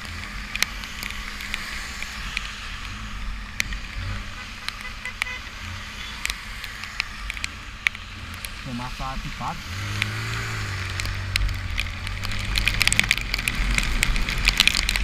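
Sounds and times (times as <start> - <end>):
motorcycle engine rumble: 0.0 - 15.0
rain hissing on wet road: 0.0 - 15.0.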